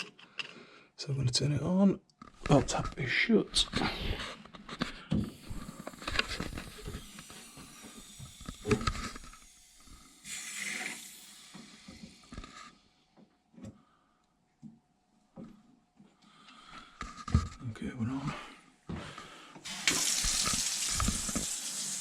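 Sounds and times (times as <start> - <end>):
water hissing into pipes: 5.2 - 13.0, 19.6 - 22.0.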